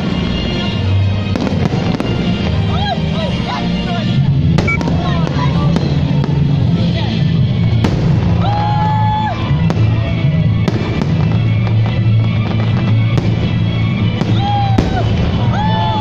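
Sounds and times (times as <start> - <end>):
fireworks bangs: 4.6 - 6.6, 10.7 - 16.0.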